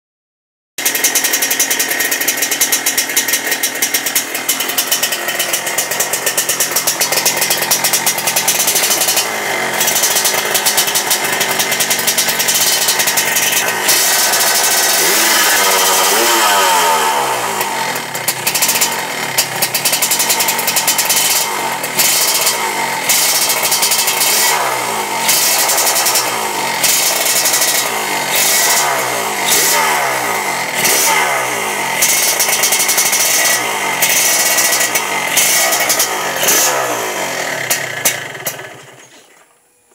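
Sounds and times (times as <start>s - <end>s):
two-stroke motorcycle engine revving: 0.8s - 39.4s.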